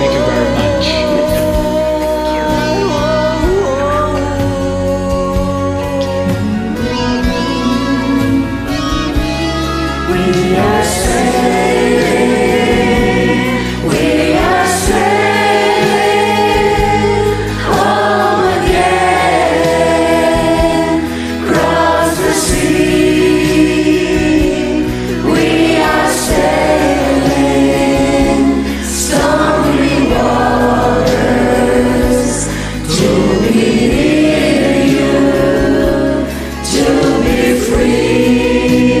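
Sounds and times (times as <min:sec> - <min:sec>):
choir singing: 0:00.0 - 0:02.0, 0:06.7 - 0:39.0
musical accompaniment: 0:00.0 - 0:39.0.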